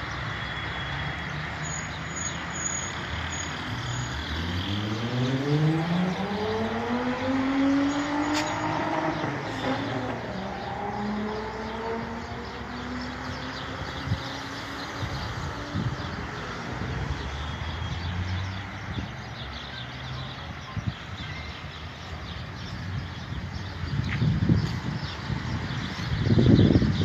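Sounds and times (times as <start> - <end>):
low rumble of traffic: 0.0 - 27.0
motor vehicle passing: 3.4 - 19.0.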